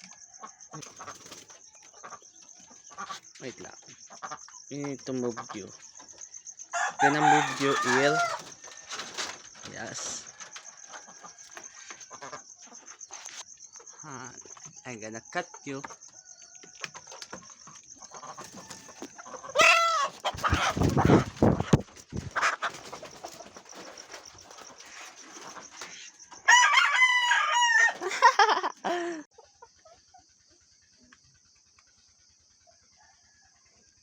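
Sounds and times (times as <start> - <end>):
night insects chirring: 0.0 - 34.0
chicken calling loudly: 6.7 - 10.2, 18.4 - 23.4, 25.5 - 29.0.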